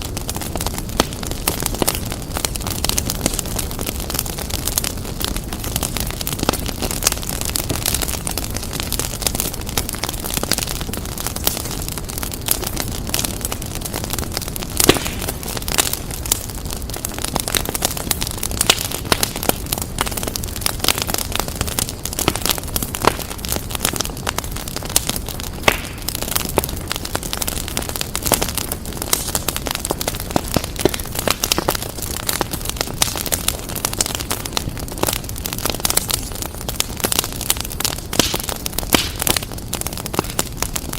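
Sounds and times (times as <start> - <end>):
fire crackling and popping: 0.0 - 40.9
low rumble of flames: 0.0 - 40.9.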